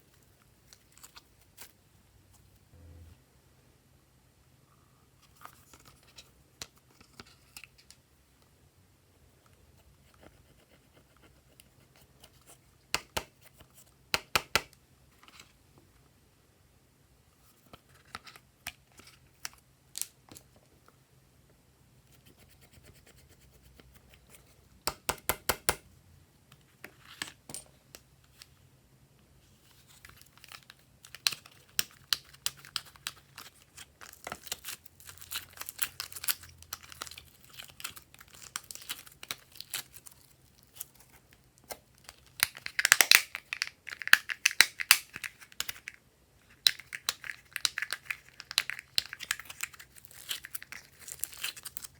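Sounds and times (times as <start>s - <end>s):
slime clicking and crackling: 41.7s - 45.9s, 46.6s - 51.9s.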